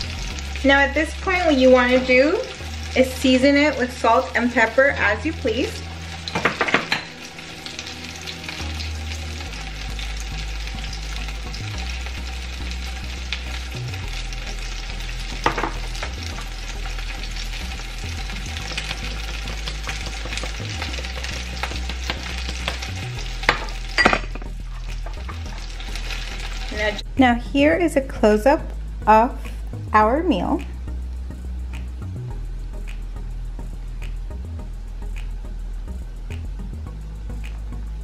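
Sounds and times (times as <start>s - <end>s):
pasta sizzling in a frying pan: 0.0s - 27.0s.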